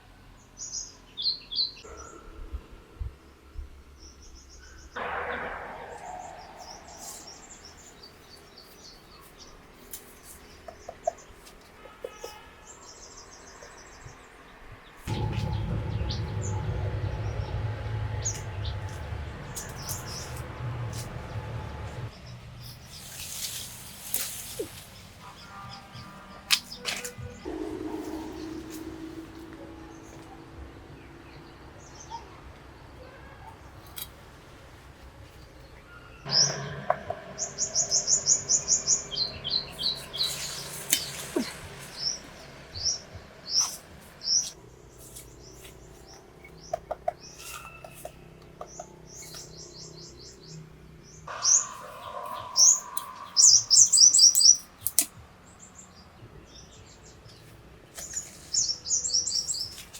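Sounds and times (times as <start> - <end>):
low rumble: 2.0 - 8.6, 15.0 - 24.0, 27.2 - 46.7
small birds chirping: 37.3 - 59.9.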